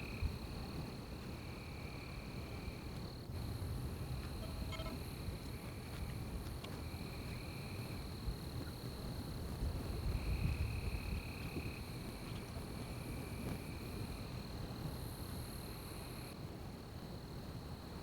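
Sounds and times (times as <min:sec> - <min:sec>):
insect trills: 0:01.4 - 0:09.0
insect high-pitched drone: 0:03.4 - 0:06.2.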